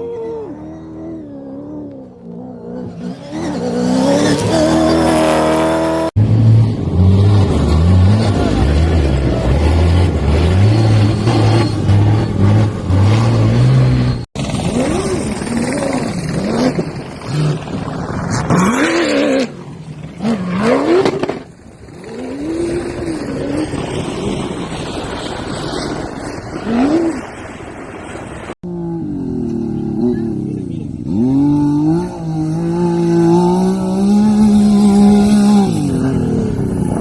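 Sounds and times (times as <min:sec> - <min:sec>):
rally vehicle engines revving: 0:00.0 - 0:27.5, 0:28.6 - 0:37.0.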